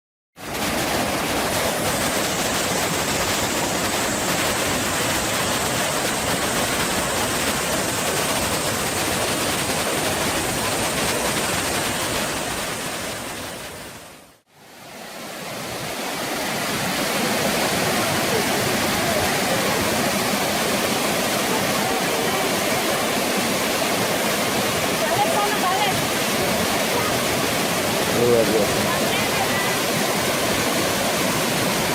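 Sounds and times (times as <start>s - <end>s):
waterfall pouring: 0.4s - 14.5s, 15.1s - 31.9s.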